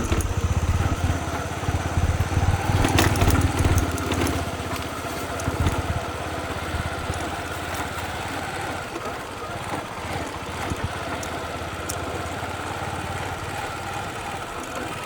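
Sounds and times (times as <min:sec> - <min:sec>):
small motorcycle engine running: 0:00.0 - 0:15.0.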